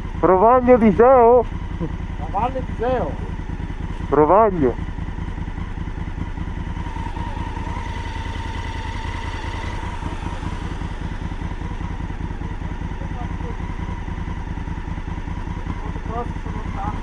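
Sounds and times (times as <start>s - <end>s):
motorcycle engine running steadily: 0.0s - 17.0s.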